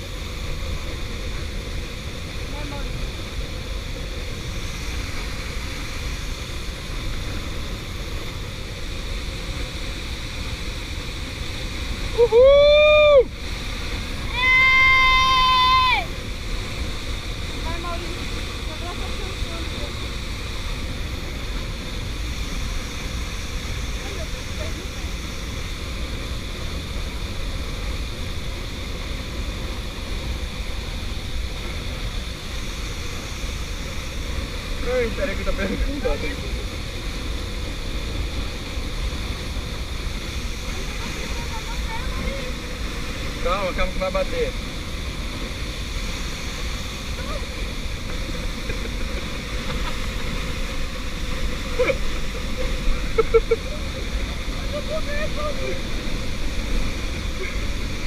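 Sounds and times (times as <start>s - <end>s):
waterfall roaring: 0.0s - 58.0s
person whooping cheer: 12.1s - 13.3s, 14.3s - 16.1s.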